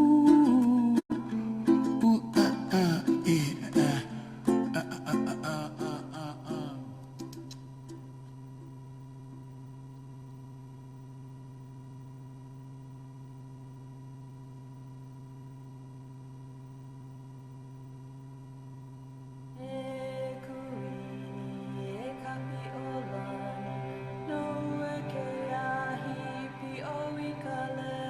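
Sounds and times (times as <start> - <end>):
song with singing: 0.0 - 7.2, 19.6 - 28.0.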